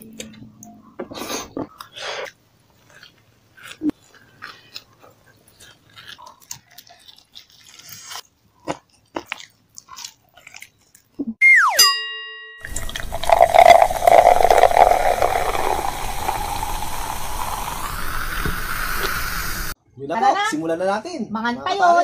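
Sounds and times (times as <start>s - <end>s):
person chewing and biting food: 1.7s - 11.2s, 12.7s - 19.6s
mouth clicks: 12.6s - 19.8s.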